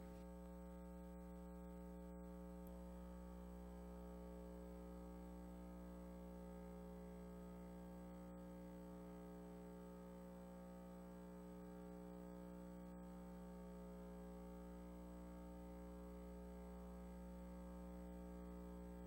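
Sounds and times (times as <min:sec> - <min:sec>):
steady electrical hum: 0:00.0 - 0:19.0.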